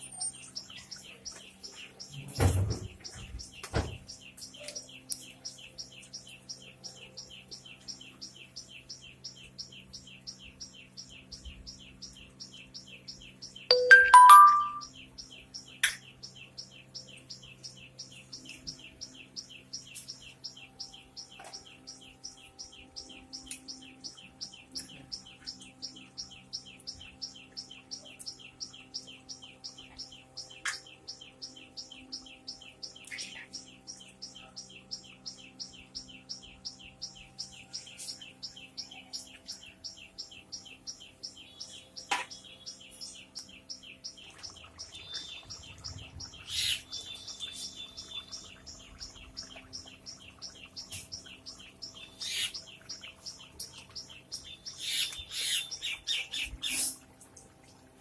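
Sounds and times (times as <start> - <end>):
small bird chirping: 0.0 - 57.1.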